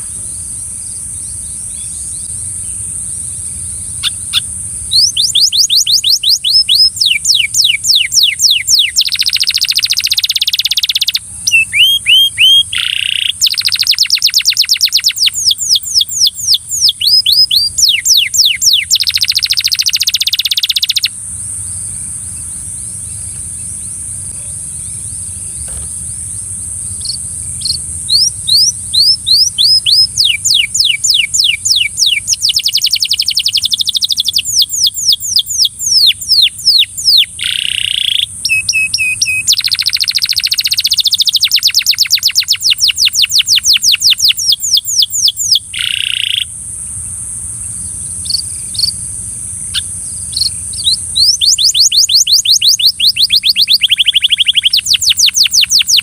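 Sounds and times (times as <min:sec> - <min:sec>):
canary singing: 0:00.0 - 0:26.2, 0:26.9 - 0:46.6, 0:47.9 - 0:56.0
steady high hiss: 0:00.0 - 0:56.0.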